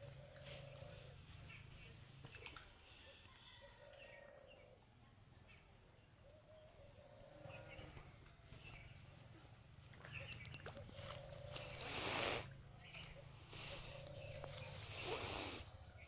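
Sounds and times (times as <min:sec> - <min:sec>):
birds chirping and calling: 0:10.0 - 0:16.0.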